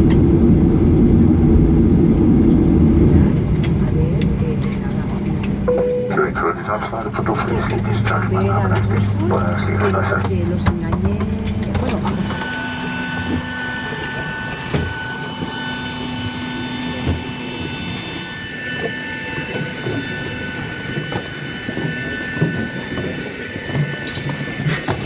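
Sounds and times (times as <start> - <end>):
low rumble: 0.0 - 12.4
jet engines whining at idle: 0.0 - 25.0.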